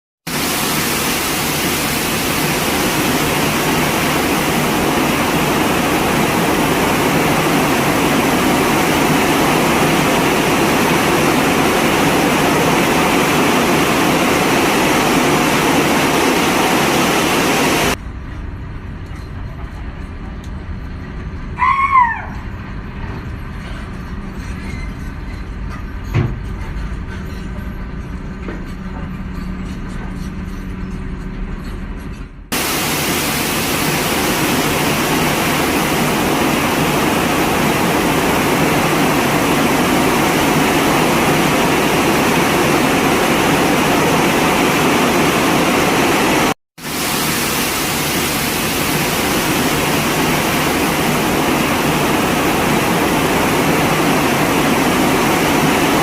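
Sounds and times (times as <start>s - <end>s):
railway wagons rolling: 2.9s - 32.3s.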